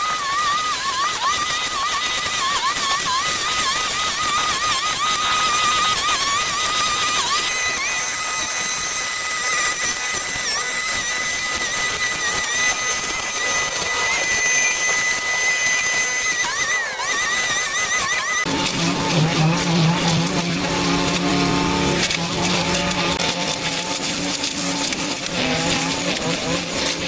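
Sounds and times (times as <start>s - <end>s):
handheld power tool petrol engine: 0.0s - 27.0s.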